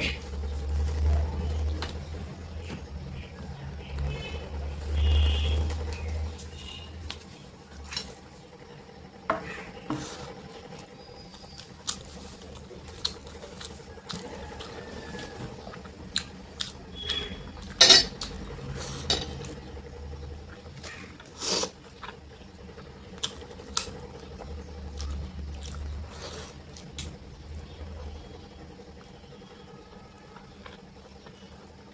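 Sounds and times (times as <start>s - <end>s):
wet mixing of food: 10.0s - 19.6s.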